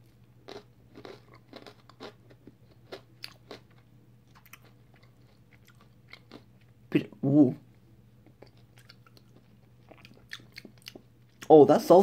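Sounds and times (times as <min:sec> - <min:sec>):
chocolate bar crunching: 0:00.4 - 0:06.5.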